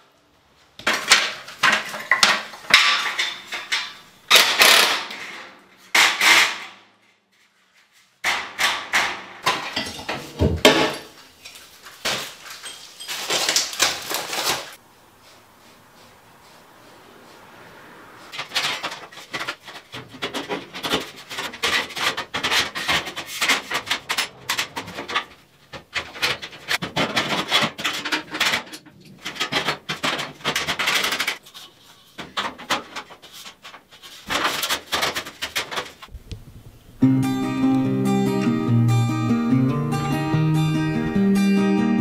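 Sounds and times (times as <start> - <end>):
scraping and rasping on wood: 18.3 - 36.1.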